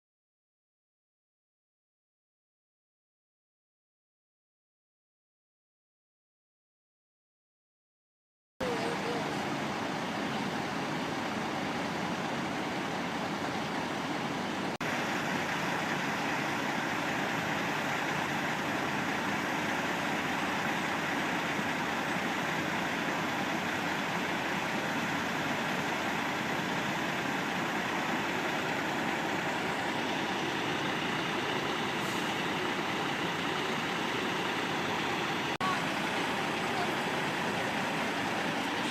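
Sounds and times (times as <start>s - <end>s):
diesel truck engines idling: 8.6s - 38.9s.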